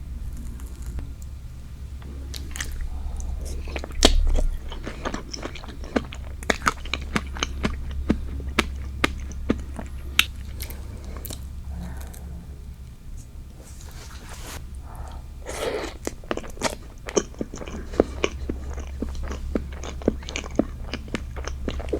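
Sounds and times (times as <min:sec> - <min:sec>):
wet chewing mouth clicks: 0:02.0 - 0:11.4, 0:15.1 - 0:21.9.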